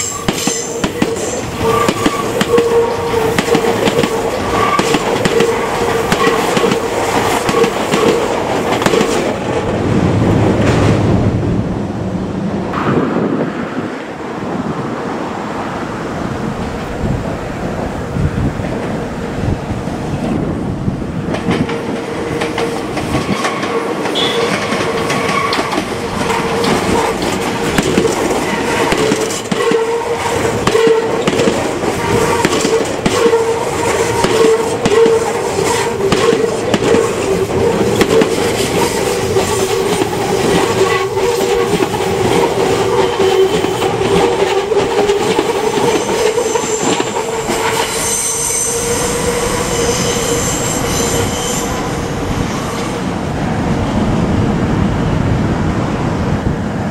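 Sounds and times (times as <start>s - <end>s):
electric train running past: 0.0s - 56.9s
wheels clicking over rail joints: 21.2s - 48.0s.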